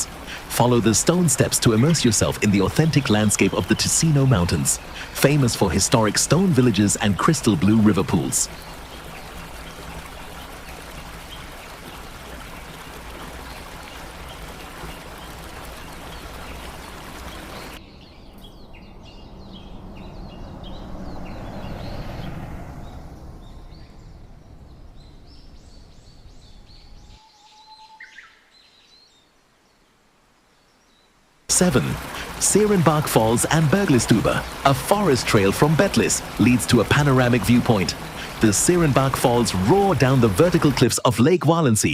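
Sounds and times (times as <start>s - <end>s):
waterfall rushing: 0.0s - 17.8s, 31.5s - 41.0s
softer rushing water: 0.0s - 27.2s, 29.3s - 41.1s
birds chirping: 0.0s - 41.1s.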